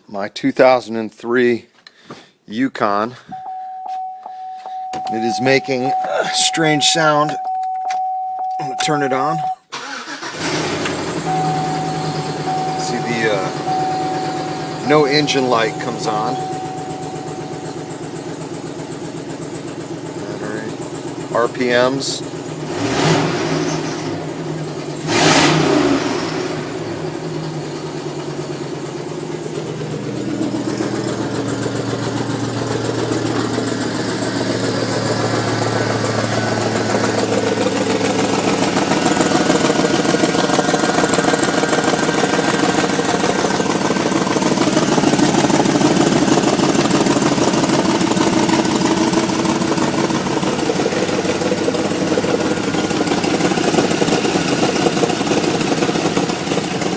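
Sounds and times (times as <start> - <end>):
strange exhaust sound: 10.0 - 56.9
engine running and revving: 10.2 - 56.9.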